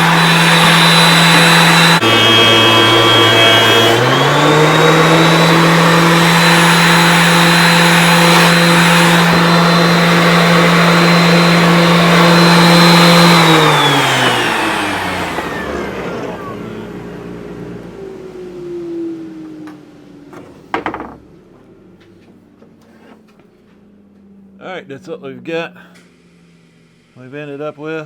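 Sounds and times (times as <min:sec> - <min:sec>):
thickness planer running: 0:00.0 - 0:21.7.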